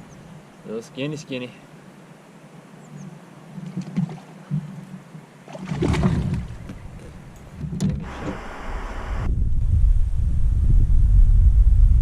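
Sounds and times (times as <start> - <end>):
knocks and handling on kayak: 3.6 - 8.4
wind buffeting microphone: 5.6 - 12.0.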